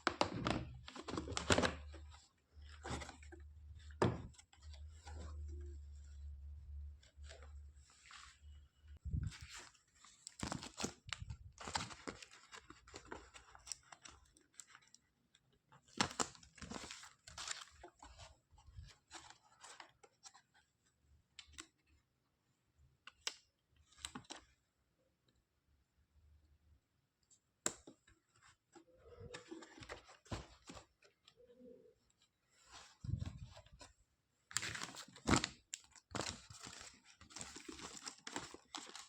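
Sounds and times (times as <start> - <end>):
packaging rustling and tearing: 34.5 - 39.0.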